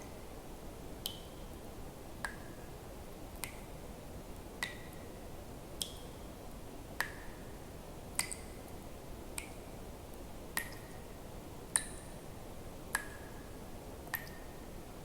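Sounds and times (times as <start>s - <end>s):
faint steady hiss: 0.0s - 15.0s
water drops plinking into water: 1.0s - 1.3s, 3.4s - 3.7s, 4.6s - 5.0s, 5.8s - 6.0s, 7.0s - 7.4s, 8.2s - 8.6s, 10.6s - 11.0s, 11.7s - 12.1s, 12.9s - 13.3s, 14.1s - 14.6s.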